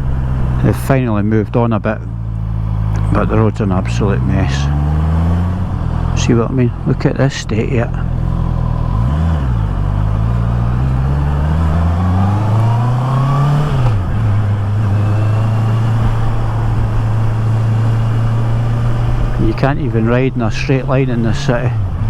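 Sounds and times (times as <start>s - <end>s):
motorcycle engine revving: 0.0s - 22.0s
road and wind noise: 0.0s - 22.0s.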